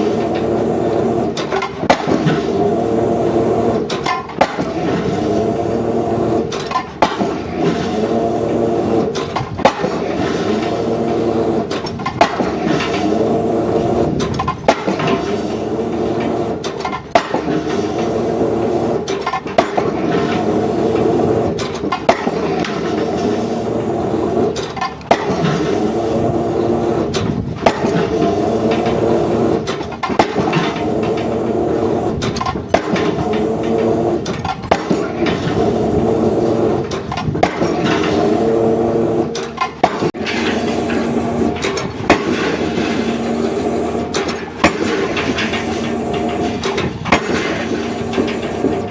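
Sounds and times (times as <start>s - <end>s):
heavy diesel engine running: 0.0s - 48.9s
pile-driving hammer striking: 3.9s - 5.0s, 6.6s - 7.8s, 9.2s - 13.2s, 16.2s - 18.2s, 19.2s - 23.3s, 25.1s - 26.0s, 27.2s - 31.5s, 32.2s - 35.8s, 36.4s - 38.5s, 39.4s - 48.9s.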